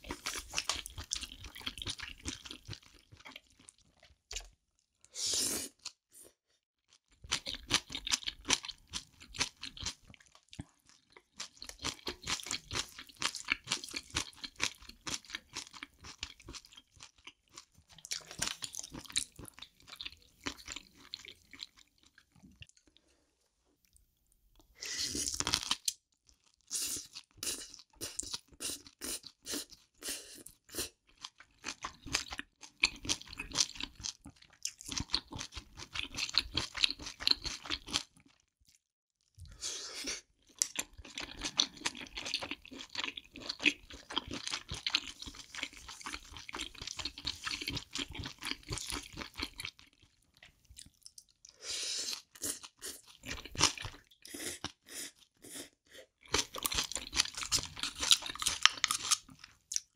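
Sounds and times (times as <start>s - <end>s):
wet chewing squelches: 40.4s - 59.9s.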